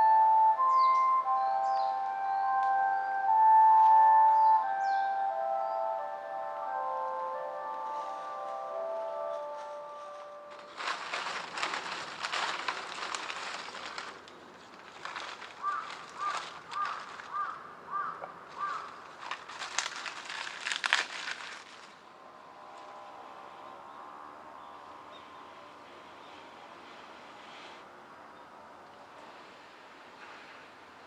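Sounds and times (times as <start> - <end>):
crackling crinkling rustle: 7.7 - 22.1.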